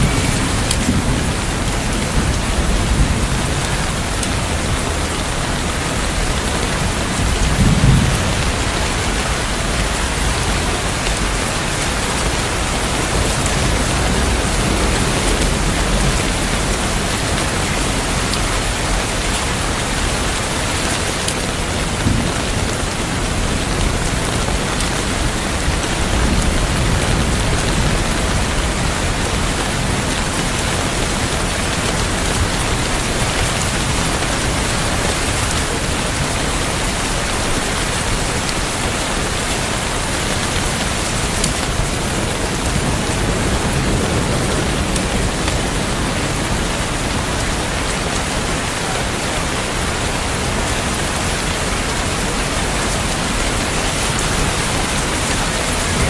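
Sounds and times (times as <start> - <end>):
distant thunder rolling: 0.0 - 20.9
heavy rain falling: 0.0 - 56.0.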